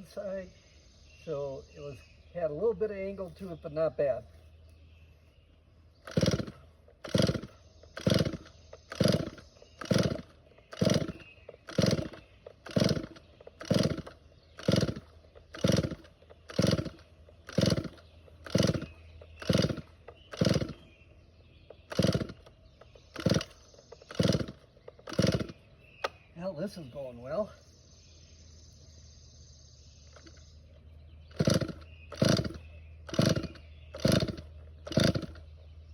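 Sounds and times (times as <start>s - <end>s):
starter cord pulls rasping: 6.0s - 21.0s, 21.6s - 26.3s, 30.0s - 30.5s, 31.2s - 35.7s.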